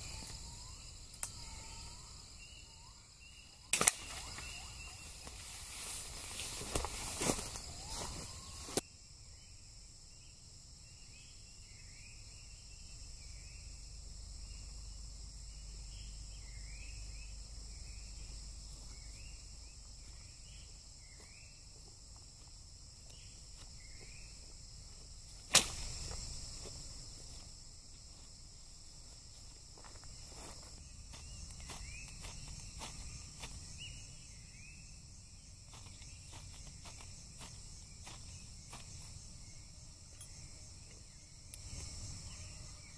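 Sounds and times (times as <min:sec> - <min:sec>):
insects trilling: 0:00.0 - 0:42.9
loud sharp crack: 0:25.5 - 0:25.9.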